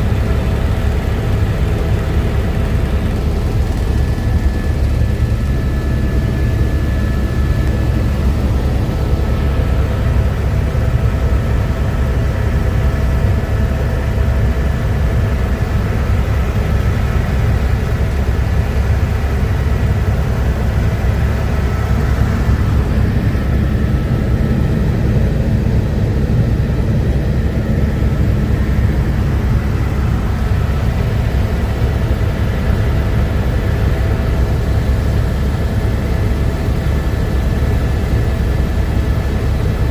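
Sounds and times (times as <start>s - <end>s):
helicopter rotor and turbine drone: 0.0s - 39.9s.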